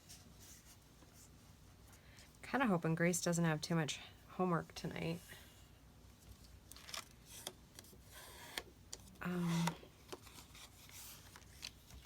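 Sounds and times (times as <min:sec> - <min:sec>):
paper rustling: 0:06.2 - 0:08.6, 0:09.6 - 0:12.0
woman humming: 0:09.2 - 0:09.8.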